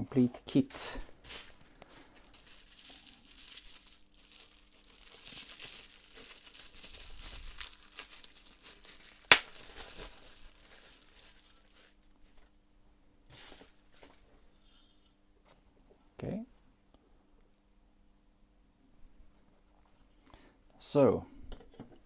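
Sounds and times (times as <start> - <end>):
packaging crinkling and rustling: 1.2 - 12.5.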